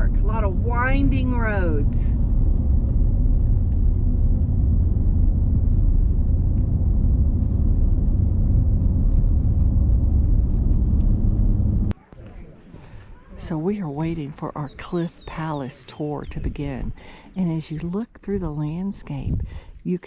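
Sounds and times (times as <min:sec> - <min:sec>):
car engine rumble: 0:00.0 - 0:12.0
road noise: 0:00.0 - 0:17.5.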